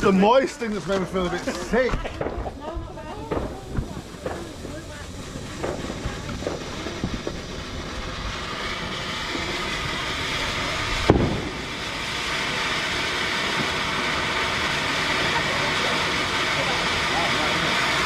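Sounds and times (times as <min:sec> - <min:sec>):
ground firework hissing: 0:00.0 - 0:18.0
sharp bang: 0:11.0 - 0:11.7.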